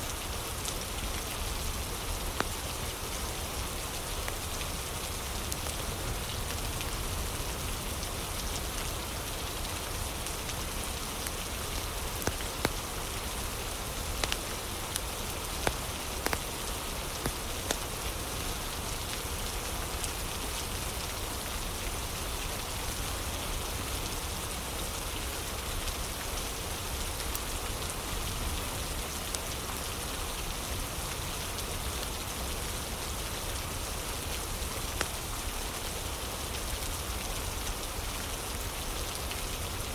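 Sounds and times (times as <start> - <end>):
rain hissing: 0.1 - 39.9
fire crackling pops: 12.1 - 12.9, 14.2 - 16.5.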